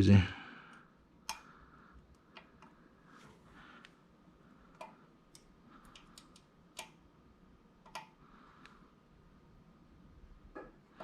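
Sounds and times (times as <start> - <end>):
parts clicking and tapping: 1.2 - 2.8, 4.7 - 7.0, 7.8 - 8.2.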